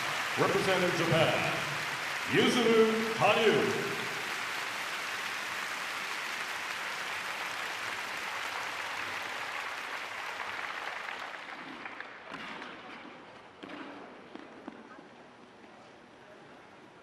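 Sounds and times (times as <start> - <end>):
crowd applauding: 0.0 - 12.4.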